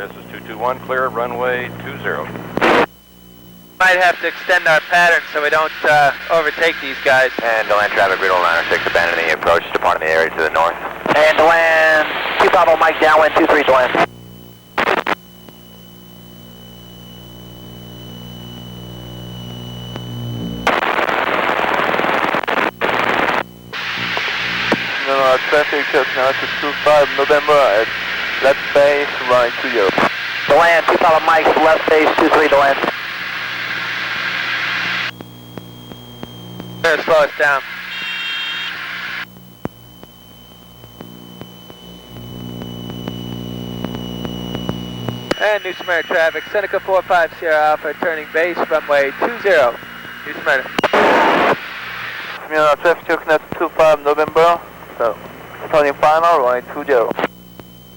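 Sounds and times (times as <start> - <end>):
radio hiss: 0.0 - 57.9
thin high whine: 0.0 - 57.9
twin propeller engines droning: 3.7 - 14.2, 23.8 - 34.2, 35.0 - 50.8
aircraft engines droning: 18.5 - 20.7
faint clicks: 35.1 - 36.8, 39.2 - 46.0.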